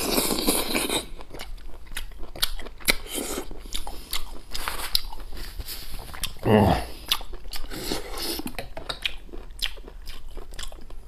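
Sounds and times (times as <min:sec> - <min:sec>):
person chewing meat: 0:00.0 - 0:11.0
mouth clicks and smacks: 0:06.0 - 0:10.9.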